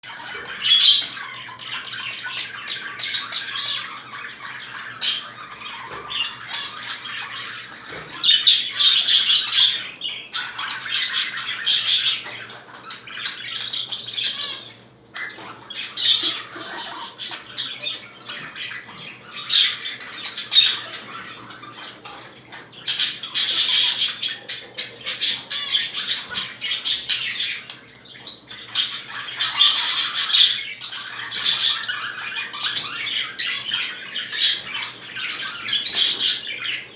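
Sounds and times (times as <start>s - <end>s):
budgerigars chattering and squawking: 0.0s - 36.9s.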